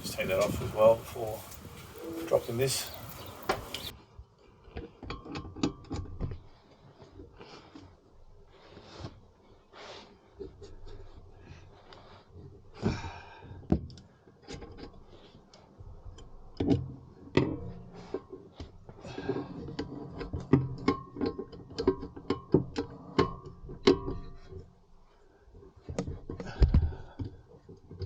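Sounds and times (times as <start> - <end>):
metal clicks and knocks: 16.1 - 24.7.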